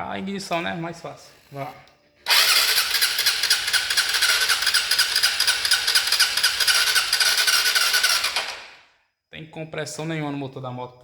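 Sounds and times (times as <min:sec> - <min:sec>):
motorcycle starter cranking engine: 0:02.2 - 0:08.8.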